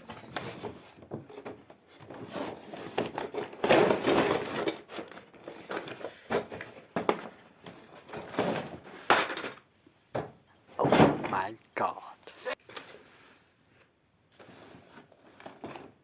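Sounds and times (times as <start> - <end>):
toy vehicles rustling and knocking: 0.0 - 11.3.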